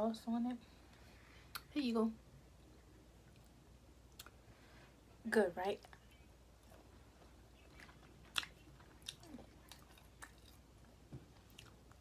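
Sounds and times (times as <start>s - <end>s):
person chewing with wet mouth clicks: 4.1s - 4.4s, 7.6s - 10.6s.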